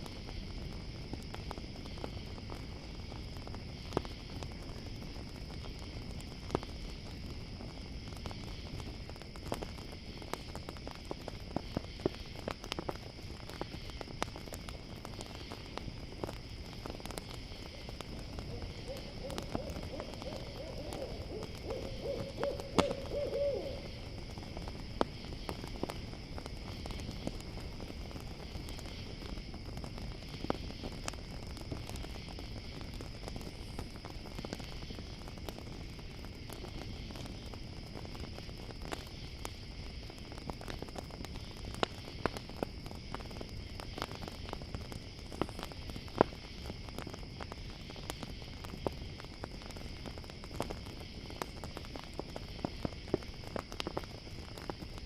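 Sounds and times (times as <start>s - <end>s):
campfire crackling: 0.0s - 55.0s
crickets chirping: 0.0s - 55.0s
sharp pops of fire: 0.0s - 55.0s
owl hooting: 18.5s - 24.1s.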